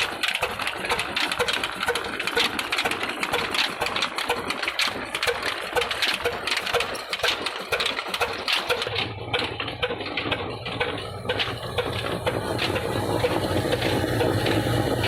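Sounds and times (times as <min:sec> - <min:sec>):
diesel engine clattering: 0:00.0 - 0:15.0
steady low hum: 0:08.9 - 0:15.0.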